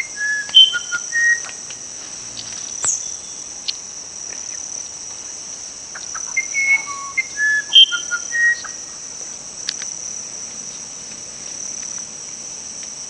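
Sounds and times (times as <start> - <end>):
songbird whistling: 0.0 - 1.6, 6.0 - 8.8
insects chorus: 0.0 - 13.0.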